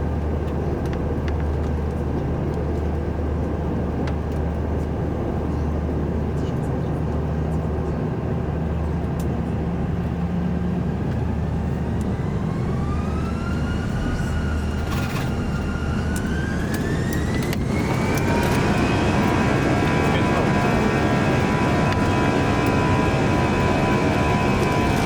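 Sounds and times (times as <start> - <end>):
jet engines spooling up: 11.0 - 25.0.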